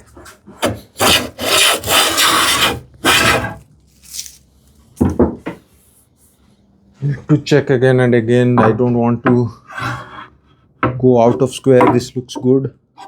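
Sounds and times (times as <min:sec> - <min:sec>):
wood scraping against wood: 0:00.0 - 0:04.4.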